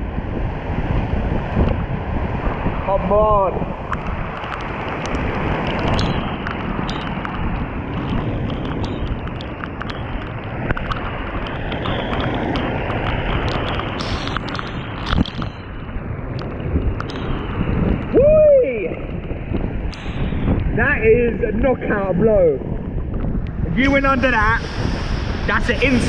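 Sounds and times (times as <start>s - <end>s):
wind buffeting microphone: 0.0s - 26.0s
sharp clicks: 3.9s - 17.4s
waterfall crashing into pool: 23.8s - 26.0s.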